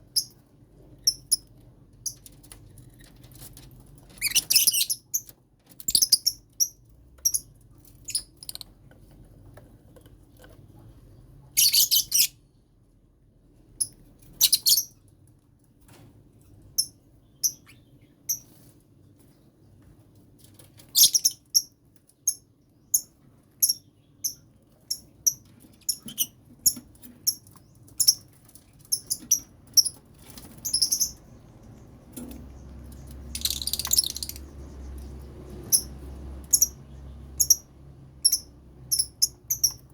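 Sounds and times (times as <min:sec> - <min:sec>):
lovebirds chirping: 0:04.2 - 0:05.3, 0:11.5 - 0:12.4, 0:22.3 - 0:39.9
rapid bird chattering: 0:28.9 - 0:35.9.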